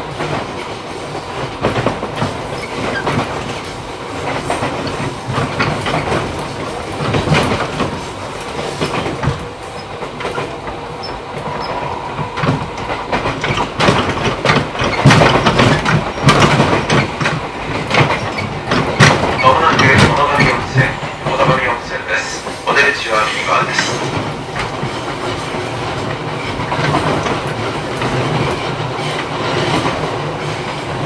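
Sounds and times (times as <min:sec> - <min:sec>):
train rolling noise: 0:00.0 - 0:31.0
wheels clacking over rail joints: 0:00.0 - 0:31.0.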